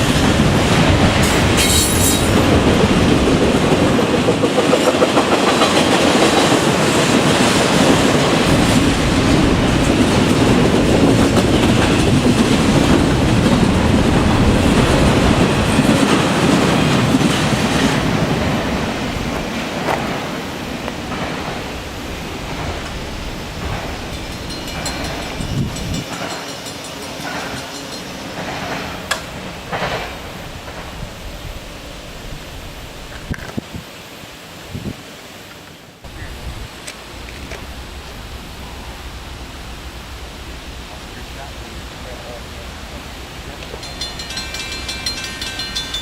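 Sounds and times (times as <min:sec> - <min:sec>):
train wheels clacking over rail joints: 0:00.0 - 0:31.2, 0:43.5 - 0:46.0.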